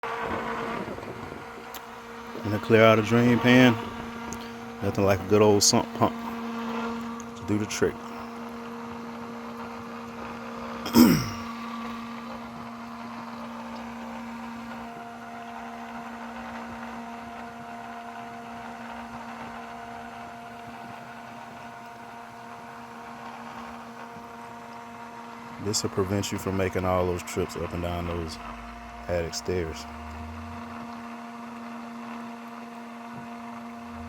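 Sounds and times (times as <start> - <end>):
sump pump humming: 0.0 - 34.0.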